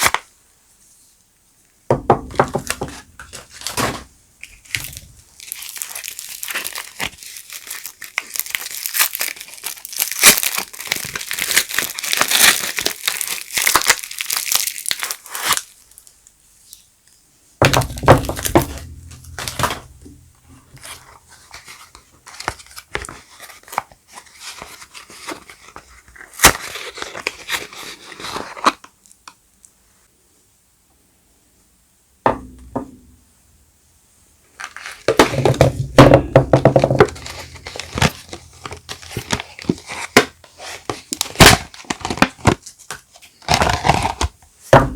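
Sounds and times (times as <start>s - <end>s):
wrapping crinkling and tearing: 0.0s - 0.3s, 3.2s - 16.8s, 17.7s - 29.3s, 34.5s - 35.6s, 36.7s - 44.6s.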